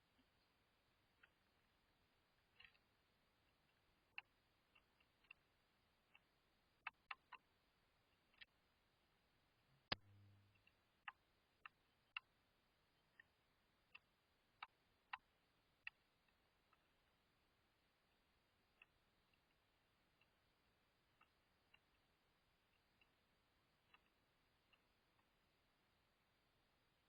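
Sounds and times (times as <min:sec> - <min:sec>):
faint sharp clicks: 0:02.4 - 0:07.5, 0:09.8 - 0:12.4, 0:13.0 - 0:17.2, 0:18.1 - 0:26.3.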